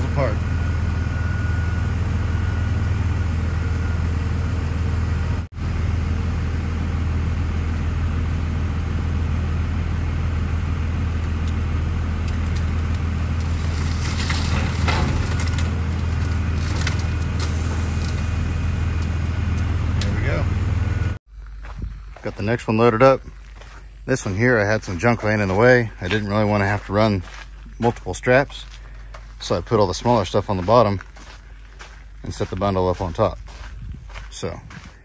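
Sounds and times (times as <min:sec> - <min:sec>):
heavy machine engine running: 0:00.0 - 0:22.1
crunching scraping metal: 0:11.7 - 0:21.0, 0:22.3 - 0:34.8.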